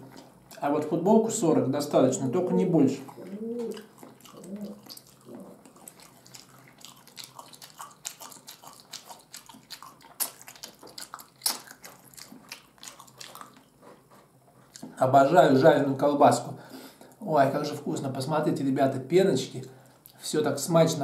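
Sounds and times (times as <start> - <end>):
wet chewing smacks: 3.0 - 15.0.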